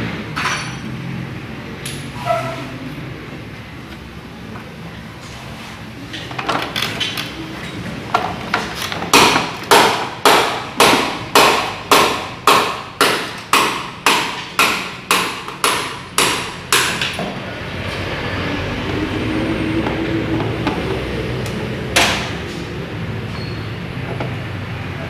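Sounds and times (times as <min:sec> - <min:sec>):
hammer blows ringing: 0:09.2 - 0:17.2.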